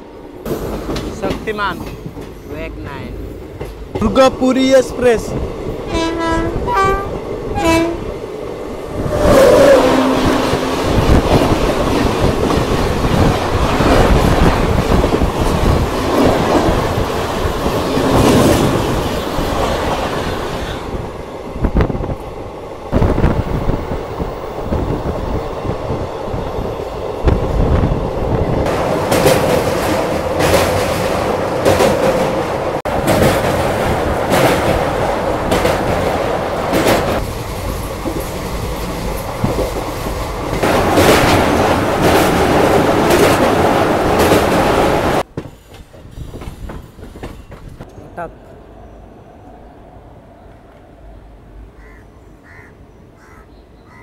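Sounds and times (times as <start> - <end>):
passing train rush and clatter: 0.0 - 53.8
train horn: 5.9 - 8.1, 9.3 - 11.1.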